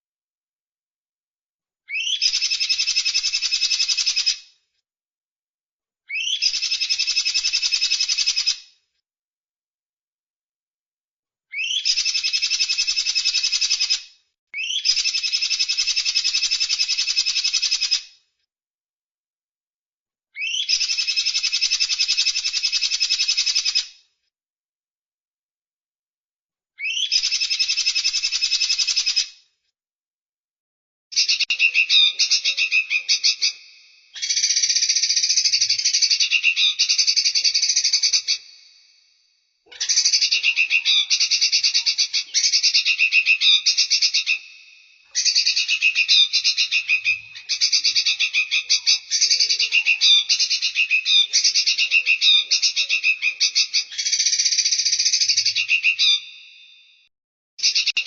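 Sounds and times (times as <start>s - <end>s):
songbird chattering trills: 31.2s - 33.6s, 34.2s - 38.5s, 39.8s - 44.5s, 45.2s - 56.3s.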